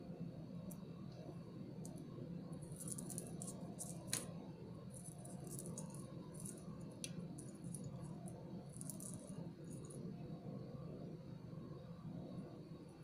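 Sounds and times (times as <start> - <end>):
steady low hum: 0.0 - 13.0
beads and metal tools clicking: 2.6 - 4.3, 4.9 - 10.0.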